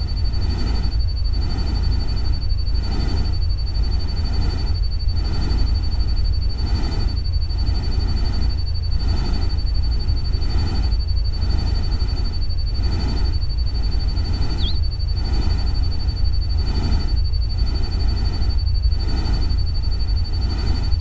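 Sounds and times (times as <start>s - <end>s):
thin high tone: 14.6s - 14.8s.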